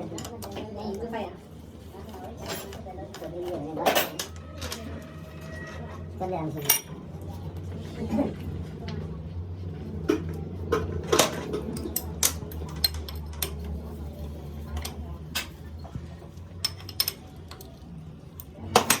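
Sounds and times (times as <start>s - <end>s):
metal tools clinking and tapping: 6.6s - 6.9s, 16.6s - 17.8s.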